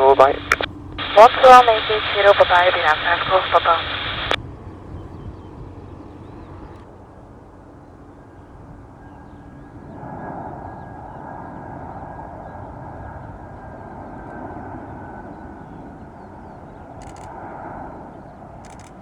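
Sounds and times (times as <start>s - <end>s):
distant jet engines: 0.0s - 19.0s
faint bird chirps: 3.4s - 17.3s.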